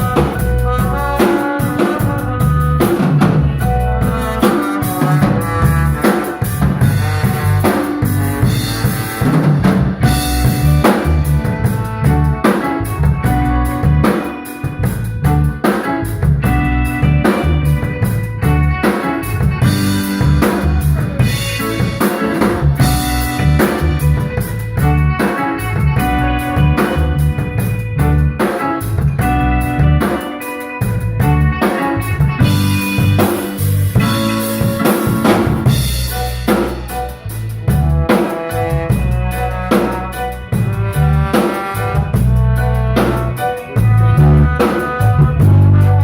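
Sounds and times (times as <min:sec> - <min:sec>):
bass line: 0:00.0 - 0:46.0
drum kit beat: 0:00.0 - 0:46.0
live instrumental band: 0:00.0 - 0:46.0
snare and bass drum hits: 0:02.8 - 0:12.8, 0:32.4 - 0:37.0.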